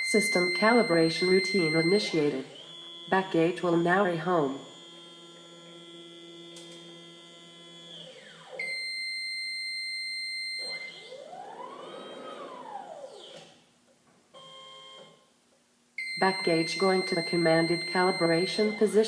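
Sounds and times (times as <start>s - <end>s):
stepper motor whine: 0.0s - 8.8s, 10.6s - 13.6s.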